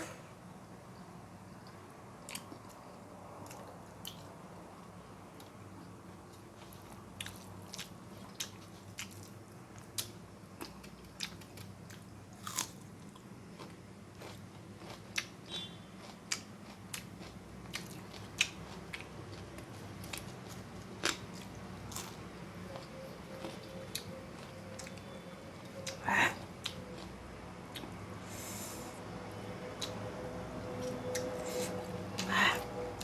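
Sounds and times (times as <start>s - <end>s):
person chewing: 1.6s - 4.3s, 6.3s - 22.2s, 25.8s - 28.0s, 30.8s - 32.6s.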